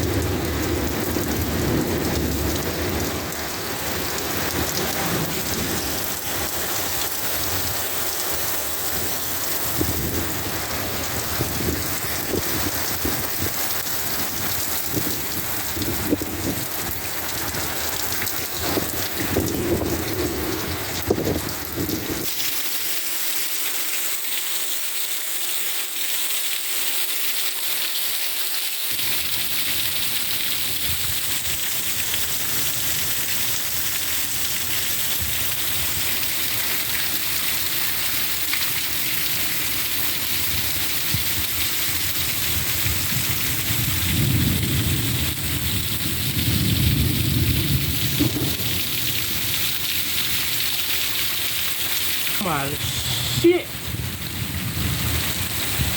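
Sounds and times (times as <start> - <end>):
thunder rumbling: 0.0 - 8.0, 8.8 - 22.3, 42.0 - 50.6, 52.3 - 55.9
heavy rain falling: 0.0 - 28.1, 28.9 - 55.9.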